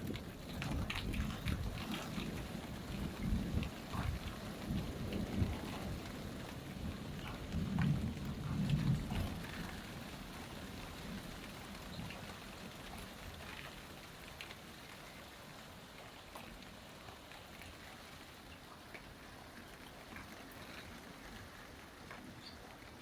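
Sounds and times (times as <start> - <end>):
low thunder rumble: 0.0 - 13.5
steady rain falling: 0.0 - 23.0
water drip ticks: 0.0 - 23.0.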